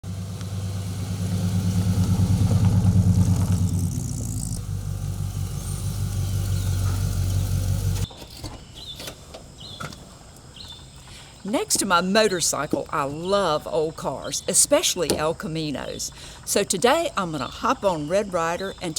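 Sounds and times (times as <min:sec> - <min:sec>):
vehicle engine idling: 0:00.0 - 0:08.1.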